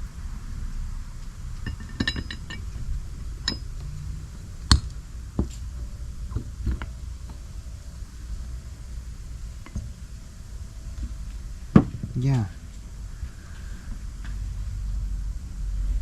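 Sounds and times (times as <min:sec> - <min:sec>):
metal engine parts clinking: 0:01.6 - 0:03.8.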